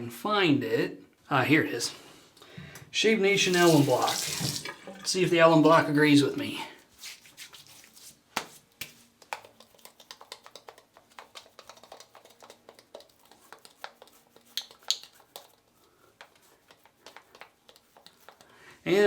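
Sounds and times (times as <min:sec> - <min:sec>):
alum block clicks and taps: 0:09.2 - 0:15.5.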